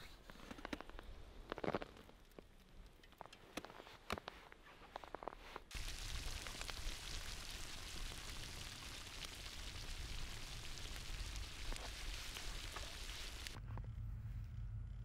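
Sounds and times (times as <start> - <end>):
meatballs sizzling in hot oil: 5.7 - 13.6.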